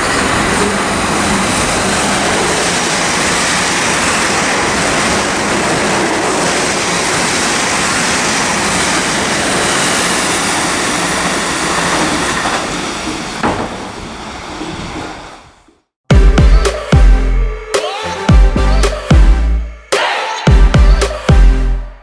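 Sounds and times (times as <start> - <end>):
train rushing through station: 0.0 - 22.0
electronic music with heavy bass: 16.1 - 22.0.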